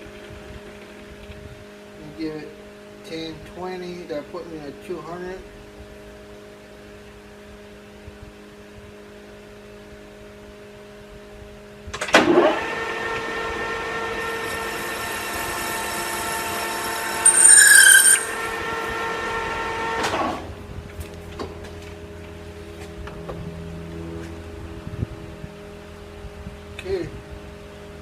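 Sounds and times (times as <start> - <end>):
metal lathe whining: 12.4 - 20.0
lathe tool squealing: 14.2 - 19.3.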